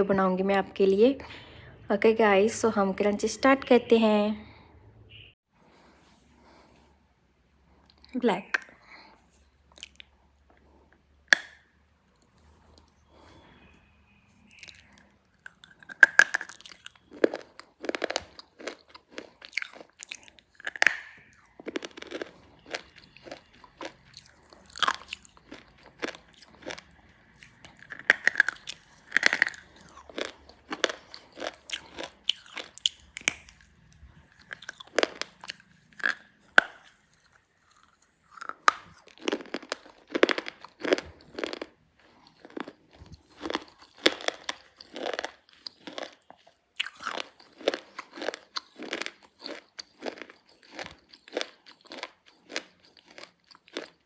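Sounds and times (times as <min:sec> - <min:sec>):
slate pencils crunching: 0:14.5 - 0:54.0.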